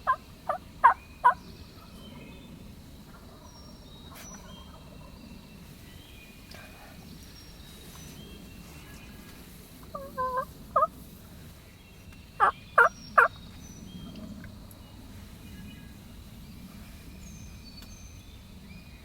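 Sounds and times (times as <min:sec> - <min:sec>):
turkey calling: 0:00.0 - 0:01.4, 0:09.9 - 0:10.9, 0:12.4 - 0:13.3
small birds chirping: 0:00.0 - 0:02.7, 0:11.6 - 0:19.0.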